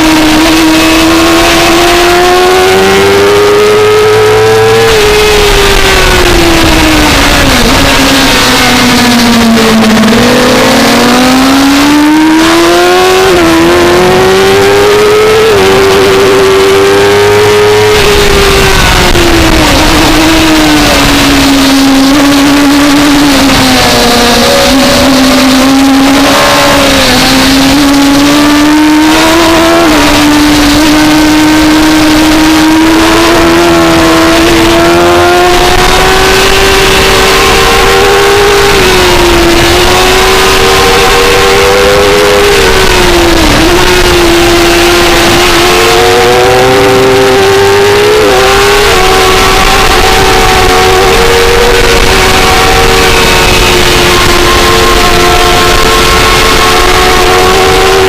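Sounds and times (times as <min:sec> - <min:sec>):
motorcycle engine at high revs: 0:00.0 - 0:58.0.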